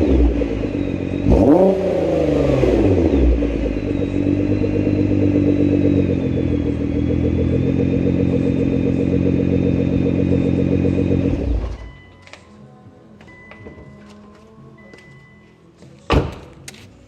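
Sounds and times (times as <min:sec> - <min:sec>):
car engine droning: 0:00.0 - 0:12.2.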